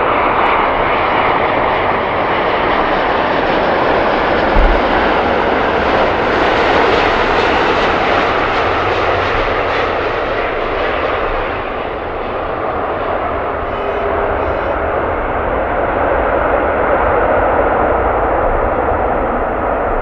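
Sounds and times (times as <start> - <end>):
jet engines roaring: 0.0 - 20.0
short low thump: 4.6 - 5.5.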